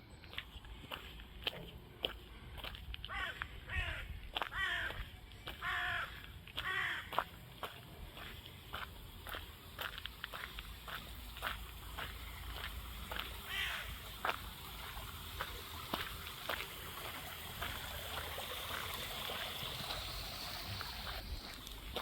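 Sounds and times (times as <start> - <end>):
footsteps on outdoor path: 0.0 - 22.0
running water rushing: 8.8 - 22.0.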